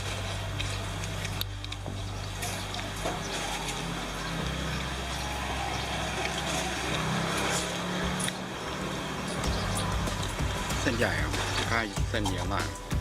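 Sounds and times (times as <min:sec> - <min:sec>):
street din: 0:00.0 - 0:13.0
vehicle engine humming: 0:00.0 - 0:13.0.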